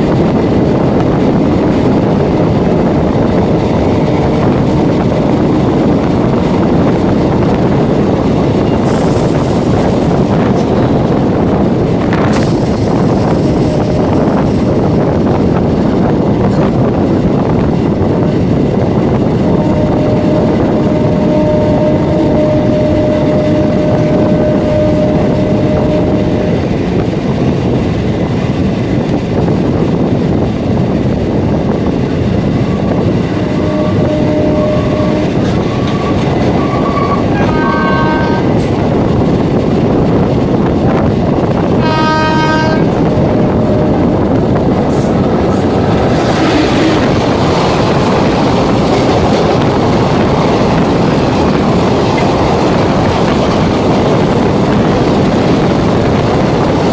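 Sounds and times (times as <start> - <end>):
train wheels rumbling on track: 0.0 - 56.9
train horn blasts: 4.0 - 5.9, 13.4 - 14.4, 19.3 - 26.7, 32.6 - 38.7, 41.8 - 51.6.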